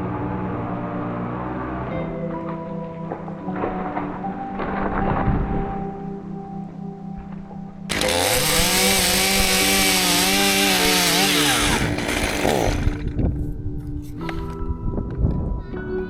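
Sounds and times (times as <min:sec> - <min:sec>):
chainsaw revving: 0:07.9 - 0:13.2.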